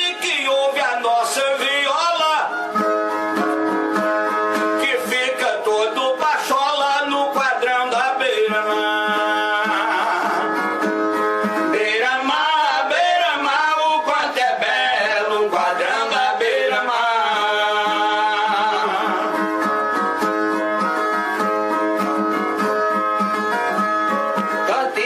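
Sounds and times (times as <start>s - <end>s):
man singing: 0.0s - 2.8s, 4.8s - 10.8s, 11.6s - 19.7s, 24.6s - 25.0s
guitar-like viola playing: 0.0s - 25.0s.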